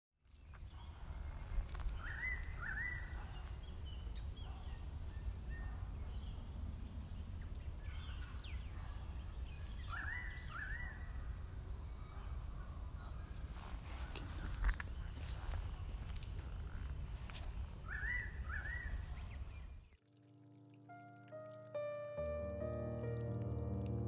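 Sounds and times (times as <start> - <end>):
bird calling: 17.8 - 19.3.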